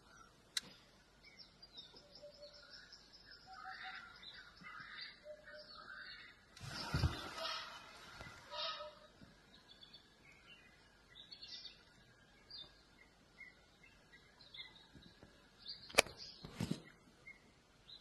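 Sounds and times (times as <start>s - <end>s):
faint birds chirping: 0.0s - 18.0s
sharp click: 15.9s - 16.2s.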